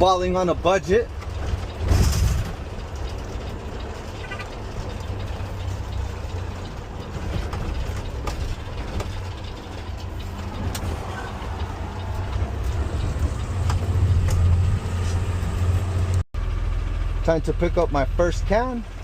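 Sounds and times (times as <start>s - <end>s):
light clicks and rattles: 0.0s - 15.3s
garbage truck engine rumbling: 0.0s - 19.0s.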